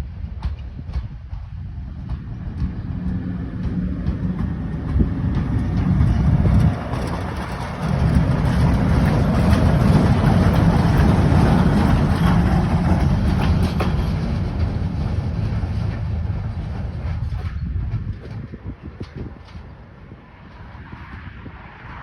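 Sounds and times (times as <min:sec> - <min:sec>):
wheels on track: 0:00.0 - 0:22.0
locomotives passing: 0:01.7 - 0:22.0.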